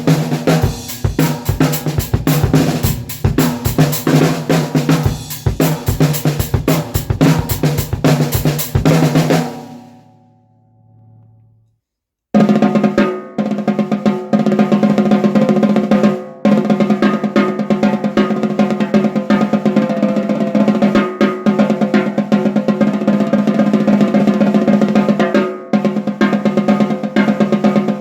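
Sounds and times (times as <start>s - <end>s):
snare drum rolls: 0.0s - 9.8s.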